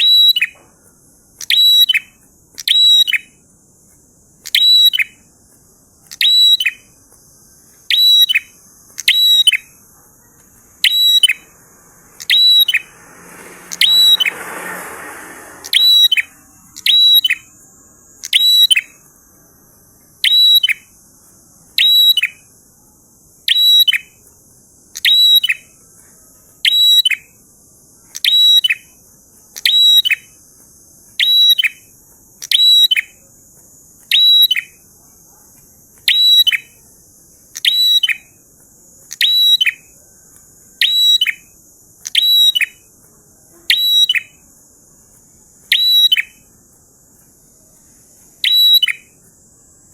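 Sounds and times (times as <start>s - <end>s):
bird singing high phrase: 0.0s - 0.6s, 1.3s - 3.4s, 4.4s - 5.3s, 6.0s - 14.5s, 15.4s - 21.0s, 21.8s - 22.5s, 23.4s - 24.2s, 24.9s - 25.8s, 26.6s - 27.4s, 28.0s - 29.0s, 29.6s - 30.4s, 31.2s - 33.2s, 34.1s - 34.8s, 36.1s - 36.8s, 37.5s - 38.4s, 39.1s - 40.0s, 40.8s - 42.9s, 43.7s - 44.4s, 45.7s - 46.5s, 48.4s - 49.2s
faint high hiss: 0.0s - 26.7s
brief rushing noise: 11.6s - 16.7s.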